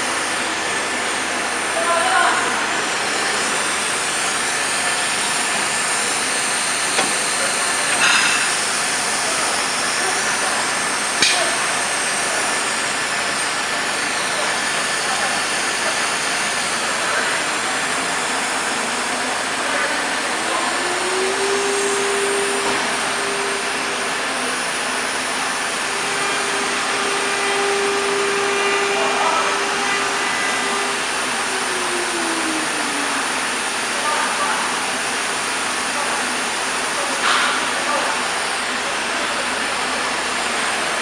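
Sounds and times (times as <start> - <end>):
router motor whine: 20.3 - 34.0.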